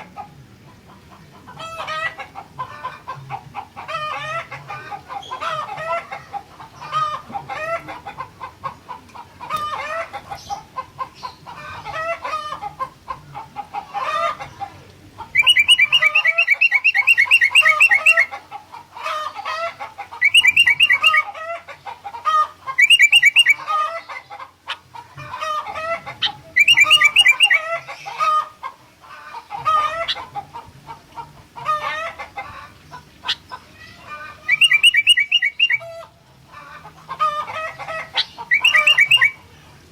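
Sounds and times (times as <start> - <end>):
bird whistled phrases: 15.4 - 18.3, 20.2 - 21.2, 22.8 - 23.6, 26.6 - 27.7, 34.5 - 35.8, 38.2 - 39.4
high fast bird trills: 15.4 - 18.3, 20.2 - 21.3, 22.7 - 23.7, 26.2 - 28.2, 34.4 - 35.9, 38.1 - 39.4.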